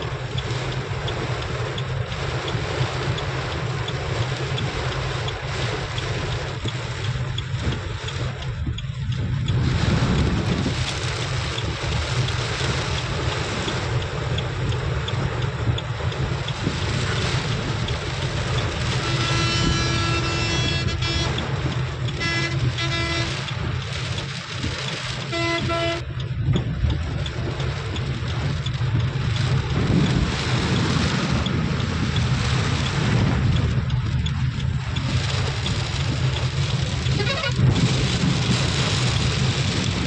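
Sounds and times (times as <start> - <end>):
heavy rain falling: 0.0 - 40.0
wind rumbling on microphone: 0.0 - 40.0
vehicle horn honking: 18.9 - 21.4, 22.1 - 23.4, 25.3 - 26.0, 37.1 - 37.6.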